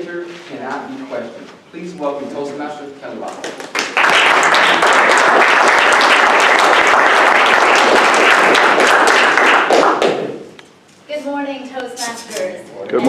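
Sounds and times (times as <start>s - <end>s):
audience applauding: 3.5s - 10.3s.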